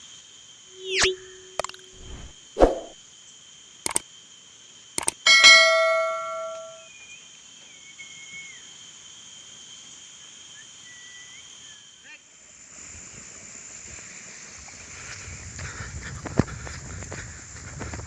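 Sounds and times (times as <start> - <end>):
insect drone: 0.0 - 18.0
struck metal ringing: 5.3 - 6.8.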